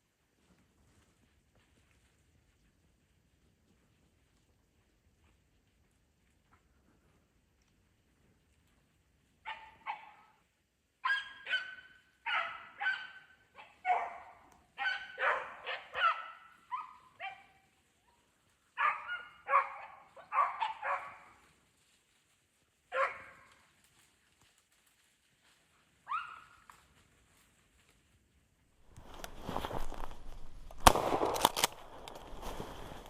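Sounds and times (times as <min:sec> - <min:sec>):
hounds baying: 0:11.0 - 0:17.6, 0:18.8 - 0:21.4, 0:22.9 - 0:23.5.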